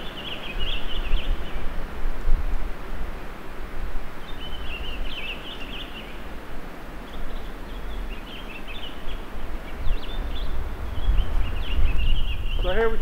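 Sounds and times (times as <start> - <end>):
songbird twittering: 0.0 - 1.7, 4.2 - 6.3, 7.0 - 13.0
outdoor hiss: 0.0 - 13.0
low rumble on microphone: 9.1 - 13.0.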